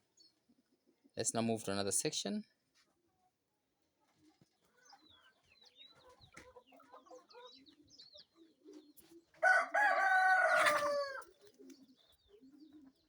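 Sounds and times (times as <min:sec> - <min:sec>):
chickens clucking and peeping: 0:00.1 - 0:01.6, 0:02.8 - 0:13.0
rooster crowing: 0:09.4 - 0:11.3.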